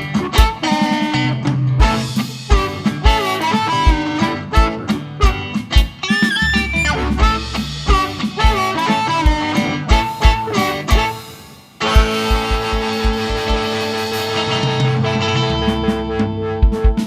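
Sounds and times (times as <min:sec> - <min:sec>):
guitar: 0:00.0 - 0:17.0
wailing harmonica: 0:02.4 - 0:11.5
bass drum beat: 0:02.5 - 0:08.8.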